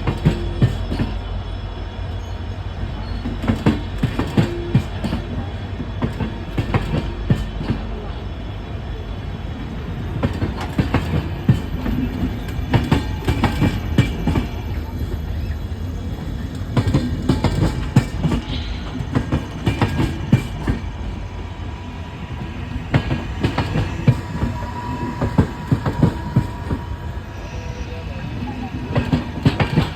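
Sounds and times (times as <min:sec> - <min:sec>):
wheels clacking over rail joints: 0:00.0 - 0:01.4, 0:02.9 - 0:07.9, 0:10.2 - 0:21.4, 0:22.4 - 0:27.1, 0:28.4 - 0:29.9
train rumbling: 0:00.0 - 0:29.9.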